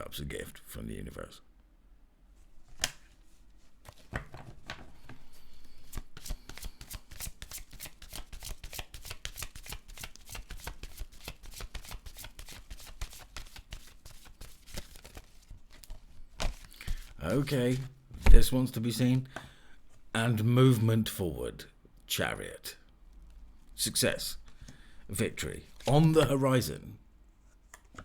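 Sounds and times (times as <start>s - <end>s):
cards being shuffled: 2.6s - 18.6s.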